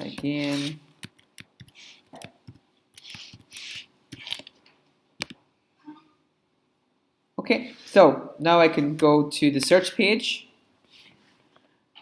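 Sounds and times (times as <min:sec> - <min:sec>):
keyboard and mouse clicks: 0:00.1 - 0:04.6, 0:05.2 - 0:05.4.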